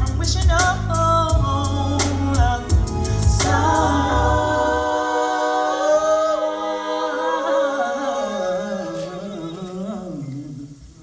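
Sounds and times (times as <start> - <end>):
voices singing a chord in harmony: 2.6 - 10.4.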